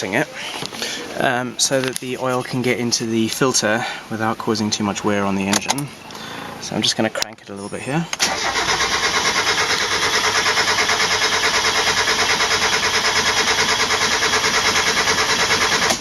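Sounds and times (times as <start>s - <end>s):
engine cranking on starter motor: 8.2s - 16.0s.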